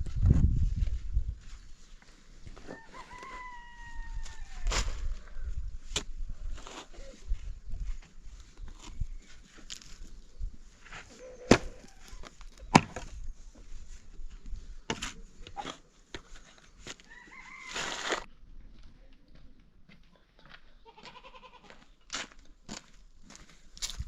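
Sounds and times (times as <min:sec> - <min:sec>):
rooster crowing: 0:02.6 - 0:04.7, 0:17.0 - 0:18.3.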